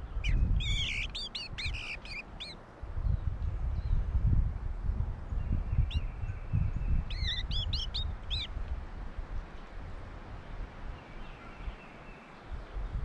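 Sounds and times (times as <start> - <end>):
bird chirping: 0.0 - 2.6, 5.7 - 8.5.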